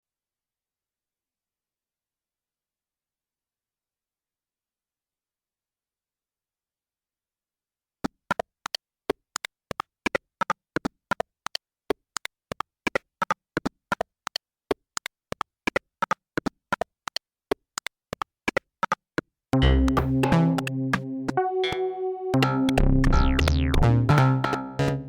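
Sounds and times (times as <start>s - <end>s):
electronic clicks and blips: 19.6s - 25.0s.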